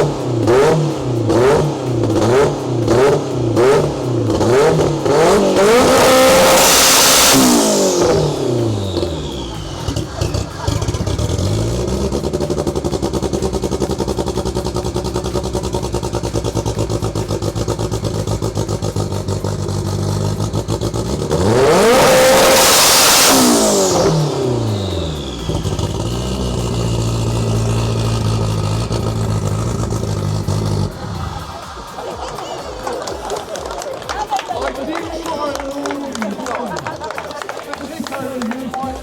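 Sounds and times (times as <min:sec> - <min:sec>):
car engine idling and revving: 0:00.0 - 0:33.4.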